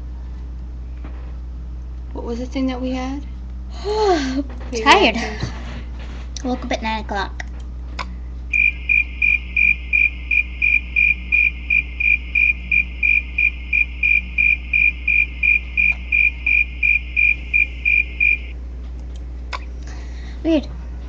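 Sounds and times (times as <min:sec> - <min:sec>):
high cricket-like electronic chirp: 0:08.5 - 0:18.6.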